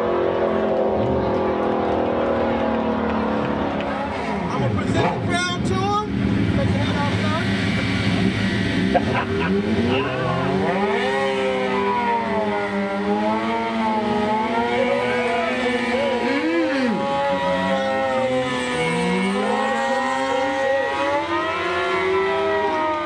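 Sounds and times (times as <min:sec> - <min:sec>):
car engines revving: 0:00.0 - 0:23.0
tires squealing: 0:07.2 - 0:23.0.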